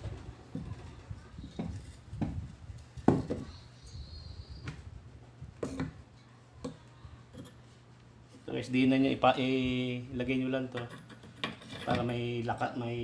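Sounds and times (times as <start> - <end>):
tools and metal parts clattering: 10.7 - 12.2.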